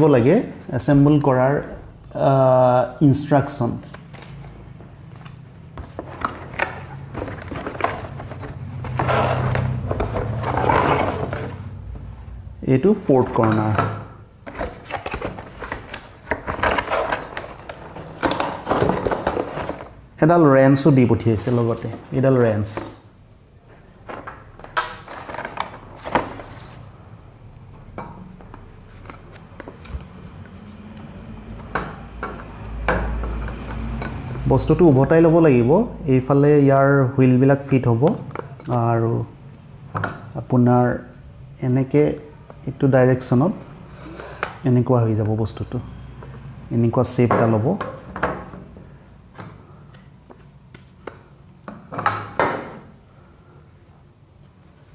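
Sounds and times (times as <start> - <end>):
packaging rustling: 3.8 - 11.6, 14.4 - 20.0, 24.1 - 26.9.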